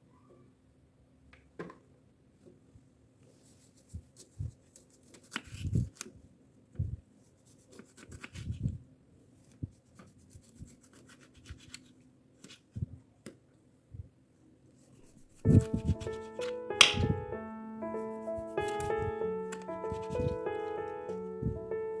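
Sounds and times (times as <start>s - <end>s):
rubbing and scrubbing: 14.8s - 16.6s.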